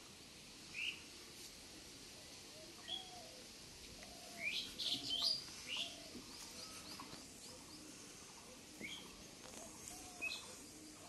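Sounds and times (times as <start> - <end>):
faint lower bird calls: 2.5 - 11.0
small birds chirping: 2.7 - 11.0.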